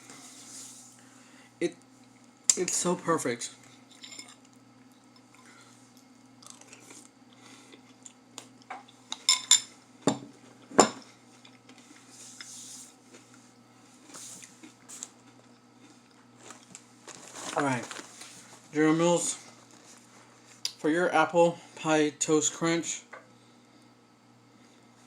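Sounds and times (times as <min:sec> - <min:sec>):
chewing cereal: 0:03.6 - 0:08.7, 0:14.0 - 0:18.4.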